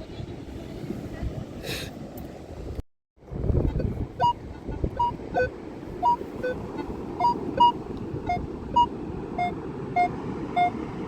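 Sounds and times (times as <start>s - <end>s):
metal detector beeps: 3.8s - 4.4s, 5.0s - 6.6s, 7.2s - 10.8s.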